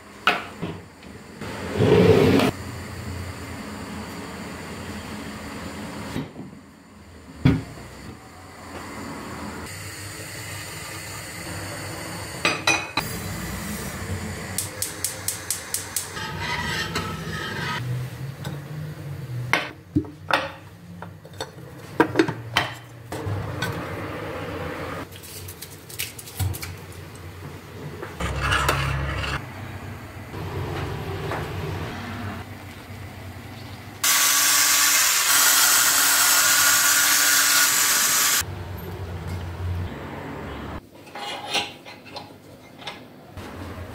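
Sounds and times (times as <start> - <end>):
dishes and cutlery clinking: 41.0 - 43.1.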